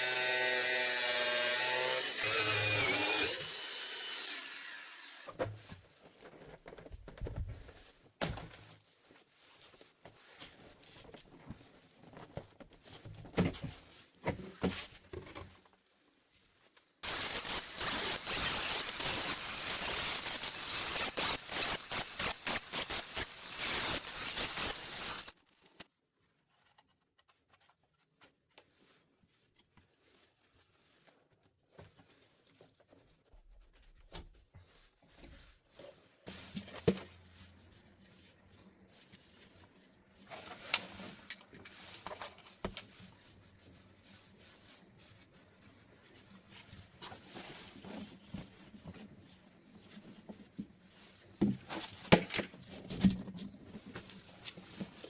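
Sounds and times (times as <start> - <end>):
power tool running: 0.0 - 5.3, 17.0 - 25.3.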